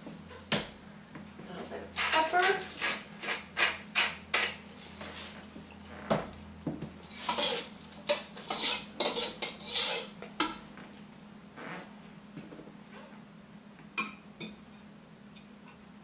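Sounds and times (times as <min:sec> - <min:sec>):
utensils and dishes clinking: 0:07.1 - 0:10.6.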